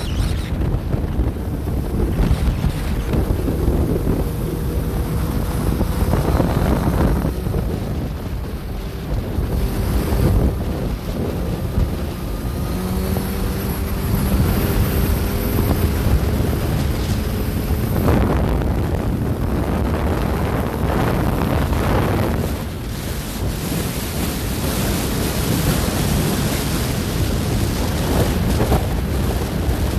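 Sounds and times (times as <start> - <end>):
motorcycle engine droning: 0.0 - 29.9
wind rushing over microphone: 0.0 - 29.9.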